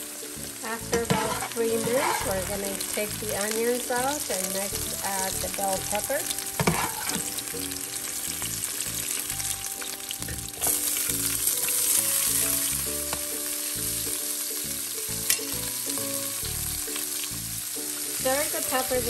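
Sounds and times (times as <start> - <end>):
vegetables sizzling in hot oil: 0.0 - 19.0
metal spoon stirring in skillet: 0.7 - 3.4, 6.2 - 8.5.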